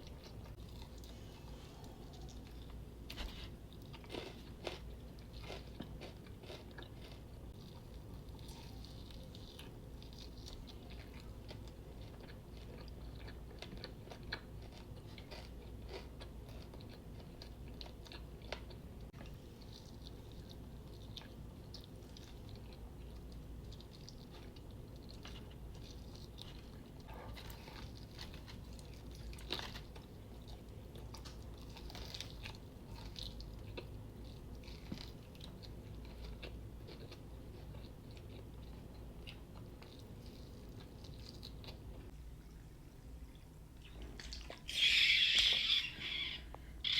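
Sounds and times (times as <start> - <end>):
chewing crispy fried chicken: 0.0 - 46.9
wet mouth sounds: 43.3 - 46.9.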